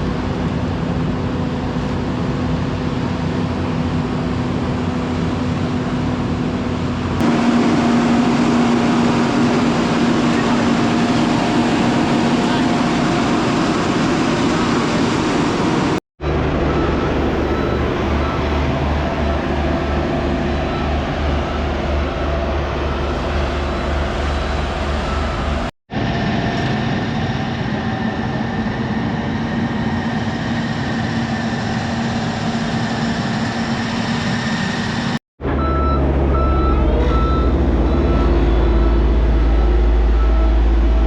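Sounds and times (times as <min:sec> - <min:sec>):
diesel construction machinery running: 0:00.0 - 0:41.0
reversing alarm beeping: 0:16.4 - 0:25.7, 0:35.5 - 0:41.0.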